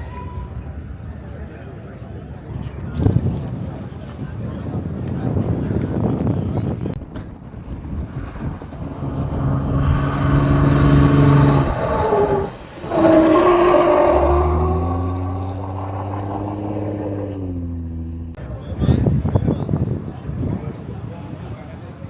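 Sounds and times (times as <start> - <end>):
car engine under throttle: 7.9 - 18.4.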